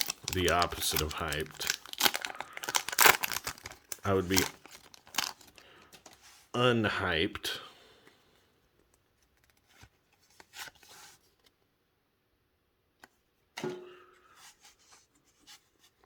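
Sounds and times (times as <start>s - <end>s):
trading cards rustling and tapping: 0.0s - 6.2s.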